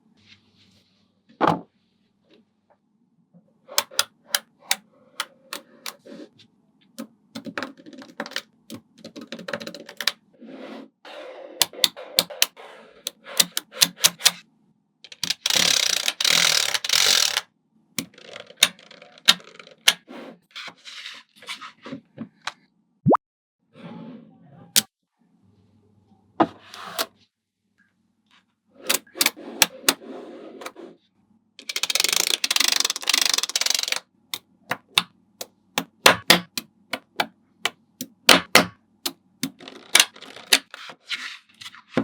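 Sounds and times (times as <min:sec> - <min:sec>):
magnet balls clicking together: 0:15.1 - 0:17.4, 0:31.6 - 0:34.0
magnet balls rattling: 0:31.7 - 0:34.0.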